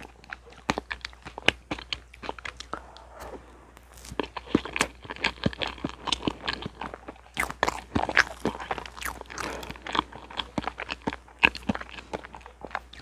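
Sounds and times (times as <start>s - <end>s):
wet chewing mouth clicks: 0.0s - 3.4s.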